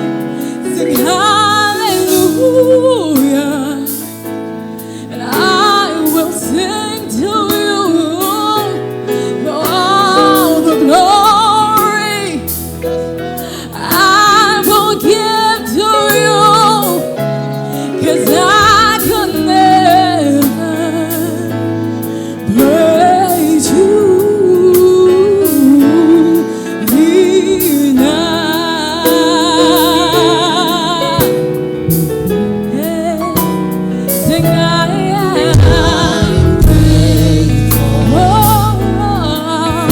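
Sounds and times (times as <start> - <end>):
instrumental backing: 0.0 - 39.9
voices singing with vibrato: 34.2 - 39.9.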